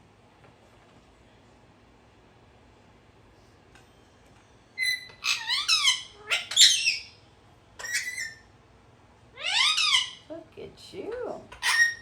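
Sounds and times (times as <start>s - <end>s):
parrot whistled calls: 4.8s - 7.2s, 7.8s - 8.5s, 9.4s - 10.2s, 11.6s - 12.0s.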